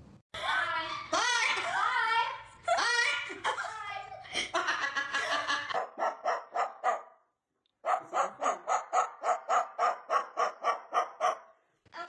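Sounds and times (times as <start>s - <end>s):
rapid dog-like barks: 5.7s - 7.2s, 7.8s - 11.6s.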